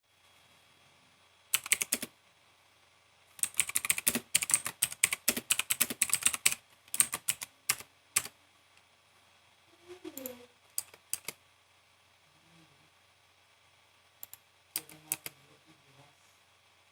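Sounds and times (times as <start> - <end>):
mechanical keyboard key clicks: 1.6 - 2.1, 3.4 - 8.3, 10.8 - 11.4.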